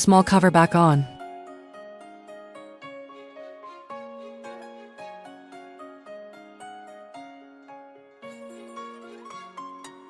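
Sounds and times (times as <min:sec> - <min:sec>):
light plucked keyboard melody: 0:00.0 - 0:10.0.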